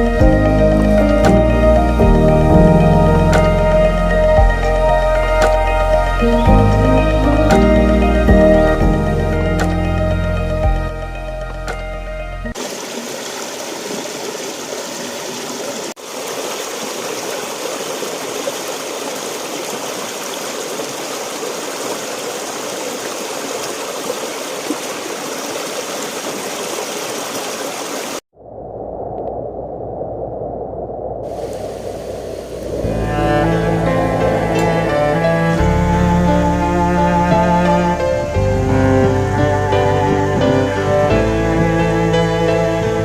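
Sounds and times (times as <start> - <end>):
creek flowing over rocks: 12.5 - 28.2.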